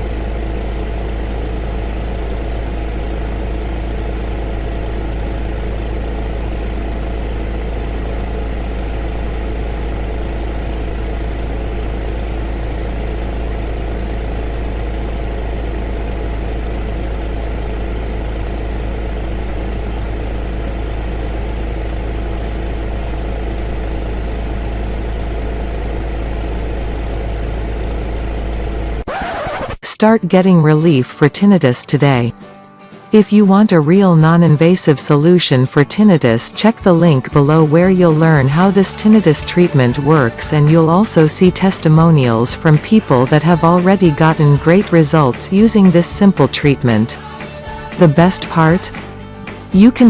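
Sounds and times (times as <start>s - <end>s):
faint steady hum: 0.0s - 29.0s
heater hissing and rumbling: 0.0s - 29.0s.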